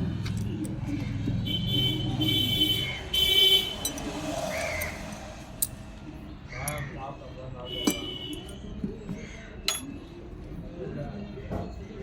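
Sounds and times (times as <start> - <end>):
vehicle horn blasts: 1.5 - 3.8, 7.7 - 8.5.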